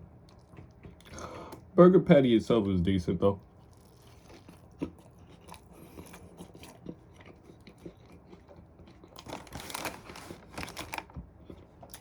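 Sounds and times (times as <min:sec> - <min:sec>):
person chewing: 0:00.2 - 0:01.7, 0:03.4 - 0:09.6.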